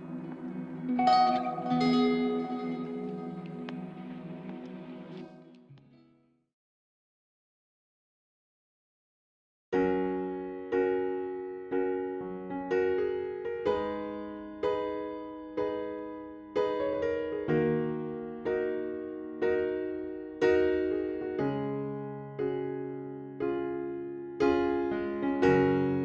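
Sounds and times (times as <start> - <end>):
slow piano chords: 0.0 - 5.9, 9.8 - 26.0.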